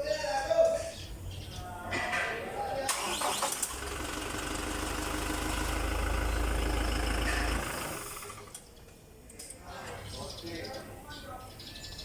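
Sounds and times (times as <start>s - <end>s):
starter motor cranking: 2.9s - 8.6s
engine running low hum: 2.9s - 8.9s.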